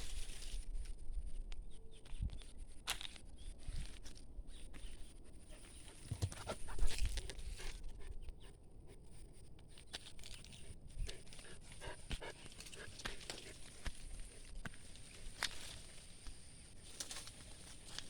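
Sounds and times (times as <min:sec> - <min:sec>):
puppy panting and snuffling: 0:05.2 - 0:15.4.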